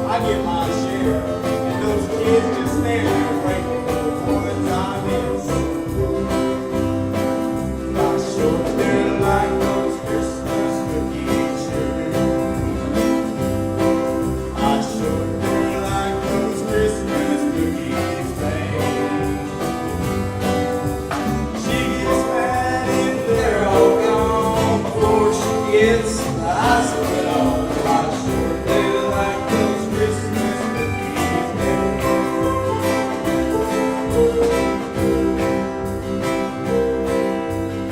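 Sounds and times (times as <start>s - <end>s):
choir singing: 0.0s - 36.1s
instrumental accompaniment: 0.0s - 37.9s
wavering solo vocal line: 21.4s - 35.7s.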